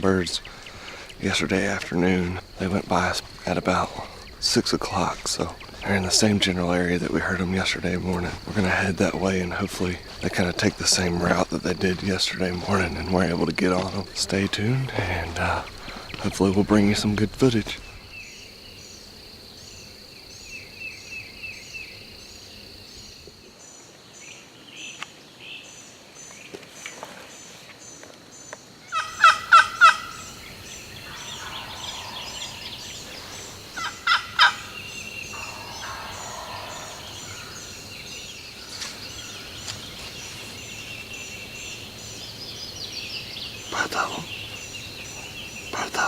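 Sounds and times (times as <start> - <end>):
turkeys gobbling: 28.9 - 37.8.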